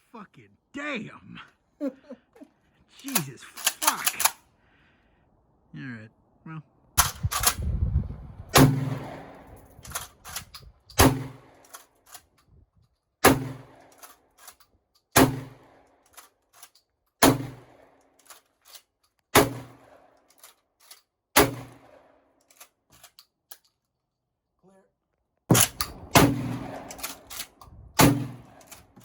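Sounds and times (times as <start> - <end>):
sharp clicks and cracks: 3.0 - 4.4, 7.0 - 7.6, 9.3 - 17.2, 18.0 - 21.1, 22.4 - 24.0, 25.5 - 29.0
shotgun blasts: 8.5 - 9.6, 11.0 - 11.6, 13.2 - 13.8, 15.2 - 15.8, 17.2 - 17.9, 19.4 - 20.0, 21.4 - 22.1, 25.5 - 29.0.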